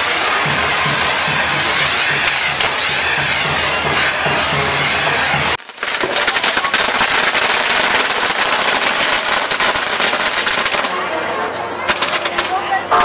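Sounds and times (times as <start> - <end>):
rapid firecracker pops: 5.6 - 11.0, 11.9 - 12.6.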